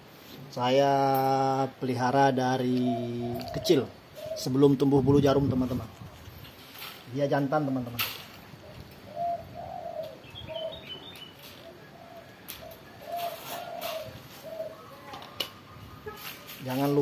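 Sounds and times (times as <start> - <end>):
bird cooing: 2.6 - 4.8, 8.5 - 17.0
bird chirps: 8.7 - 16.4.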